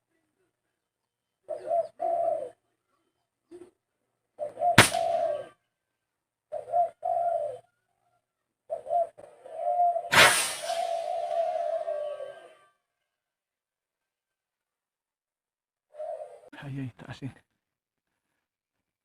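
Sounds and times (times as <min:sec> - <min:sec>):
dove cooing: 0:01.4 - 0:02.7, 0:03.5 - 0:05.7, 0:06.5 - 0:12.7, 0:15.9 - 0:16.6
sharp crack: 0:04.8 - 0:05.2, 0:10.1 - 0:11.4
crackling burst: 0:10.1 - 0:11.3.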